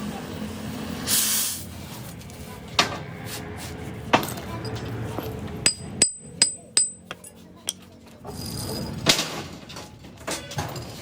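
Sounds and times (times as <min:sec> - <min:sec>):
hammer striking metal: 0:05.6 - 0:07.8.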